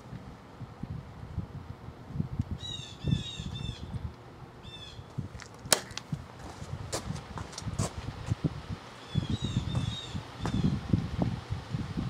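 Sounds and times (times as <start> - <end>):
wind rumble on microphone: 0.0 - 12.0
bird chirping rapidly: 9.0 - 10.8.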